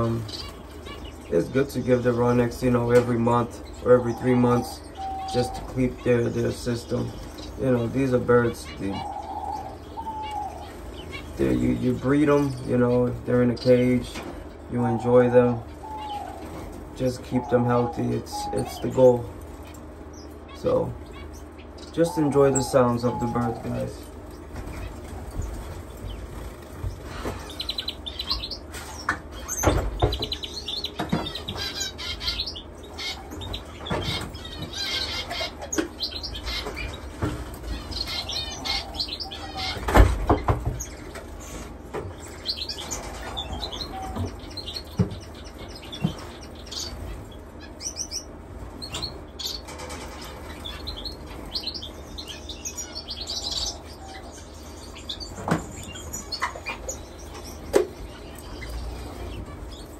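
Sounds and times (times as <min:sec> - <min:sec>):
finches chirping: 0:00.0 - 0:59.9
wings fluttering: 0:22.6 - 0:32.4.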